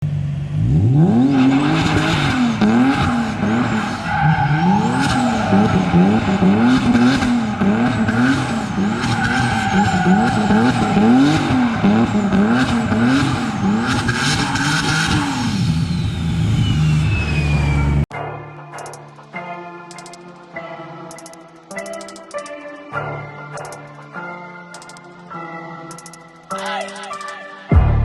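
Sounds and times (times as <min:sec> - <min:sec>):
car engine revving hard: 0:00.3 - 0:18.0
tyres squealing: 0:04.0 - 0:15.2.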